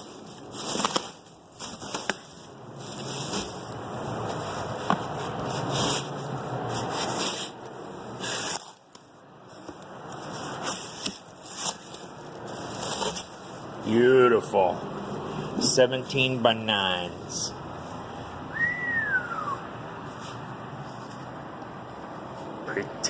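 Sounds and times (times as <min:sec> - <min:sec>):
cardboard rubbing and scraping: 0:00.0 - 0:08.8, 0:09.4 - 0:13.7.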